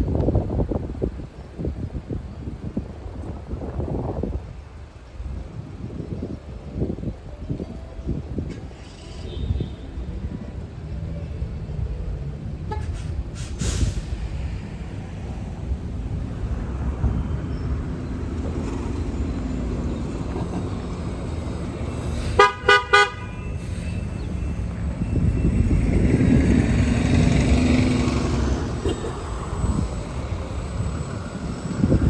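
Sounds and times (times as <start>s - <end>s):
road traffic: 0.0s - 32.0s
vehicle horn tooting: 9.0s - 10.1s, 22.2s - 24.5s
vehicle passing: 13.0s - 32.0s.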